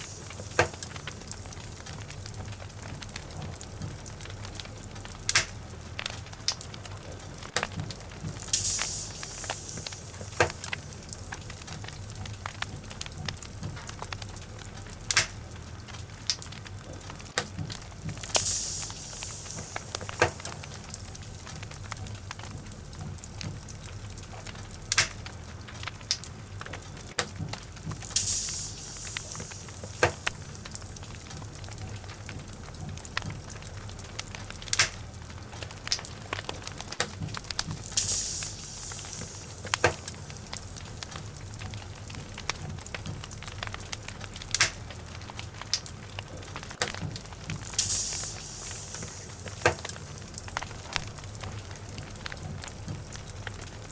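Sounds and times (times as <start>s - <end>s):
fire hissing surge: 0.0s - 5.5s, 8.0s - 13.0s, 17.7s - 22.9s, 27.6s - 32.6s, 37.3s - 42.6s, 47.2s - 52.2s
low rumble of flames: 0.0s - 53.9s
wood fire crackling and popping: 0.0s - 53.9s.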